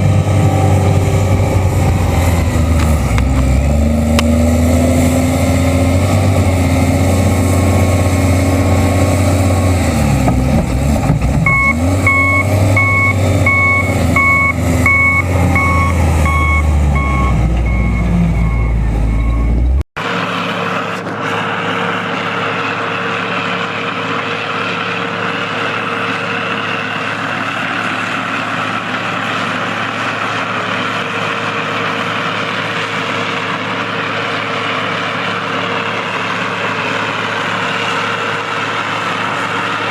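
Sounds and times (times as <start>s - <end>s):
heavy machine engine running: 0.0s - 39.9s
machine engine with rushing noise: 0.0s - 39.9s
reversing alarm beeping: 11.4s - 19.8s.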